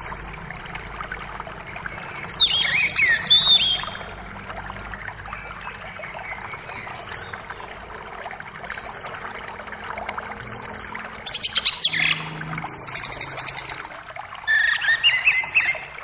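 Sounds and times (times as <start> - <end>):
forest creek rushing: 0.0 - 16.0
birds singing: 1.6 - 4.1, 4.9 - 7.9, 10.4 - 16.0.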